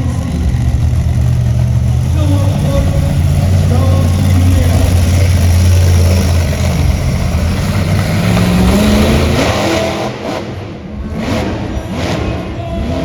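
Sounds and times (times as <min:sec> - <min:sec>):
monster truck engine revving: 0:00.0 - 0:13.0.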